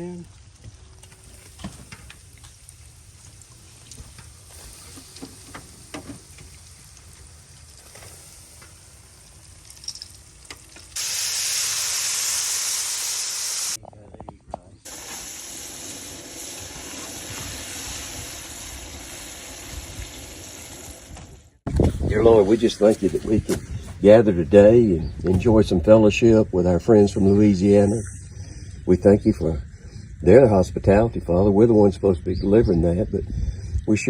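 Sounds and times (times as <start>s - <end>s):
shrimp sizzling in hot oil: 1.1s - 13.8s, 14.9s - 21.5s.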